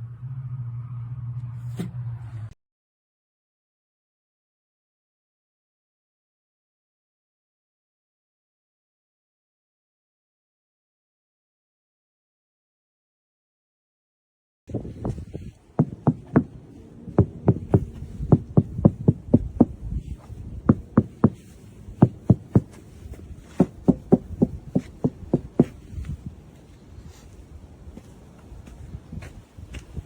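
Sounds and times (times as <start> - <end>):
low rumble: 0.0 - 2.6
knuckles knocking on sheet metal: 15.8 - 16.6, 17.2 - 19.8, 20.7 - 21.4, 22.0 - 22.8, 23.6 - 25.8.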